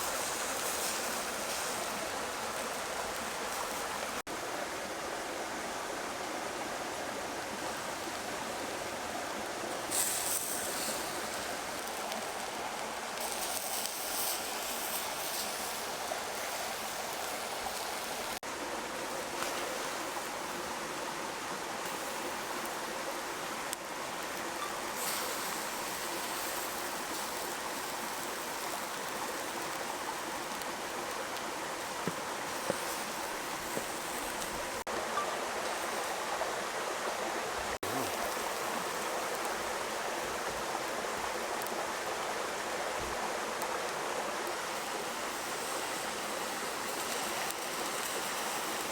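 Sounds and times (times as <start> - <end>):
high hiss: 9.9 - 18.4.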